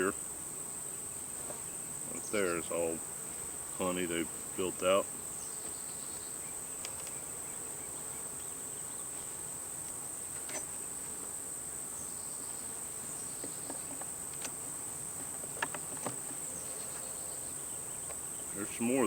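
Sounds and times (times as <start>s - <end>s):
high-pitched insect chorus: 0.0s - 9.1s
honeybees buzzing: 0.0s - 19.0s.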